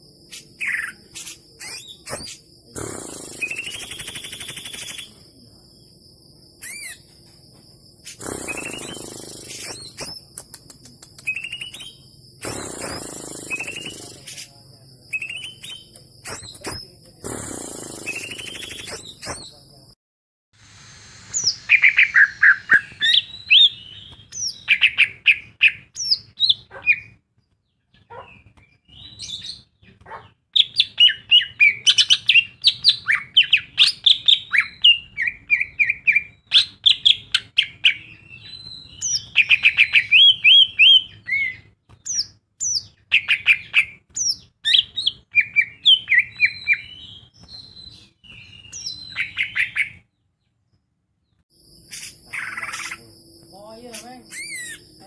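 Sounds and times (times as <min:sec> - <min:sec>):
bird singing chirps and trills: 0:00.2 - 0:05.3, 0:06.6 - 0:07.1, 0:08.0 - 0:19.6, 0:21.4 - 0:27.2, 0:51.6 - 0:55.0.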